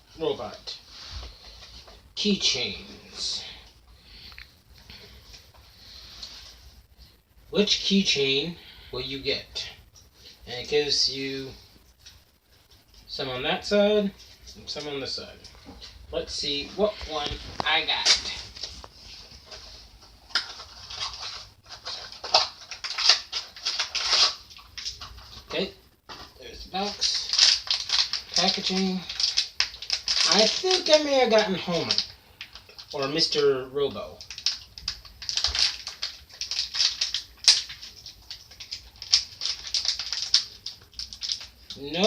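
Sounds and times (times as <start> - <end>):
packaging rustling and crinkling: 15.5 - 25.6, 26.8 - 33.4, 34.0 - 42.0.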